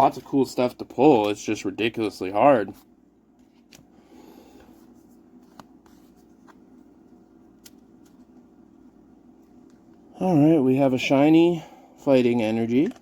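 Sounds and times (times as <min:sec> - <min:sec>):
cards being handled: 0:04.7 - 0:08.4.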